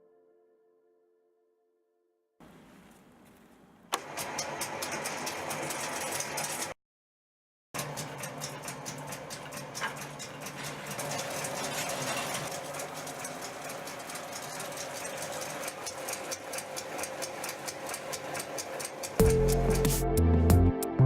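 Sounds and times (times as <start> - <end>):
motor hum: 7.8 - 20.0
rapid even clicking: 12.5 - 20.0.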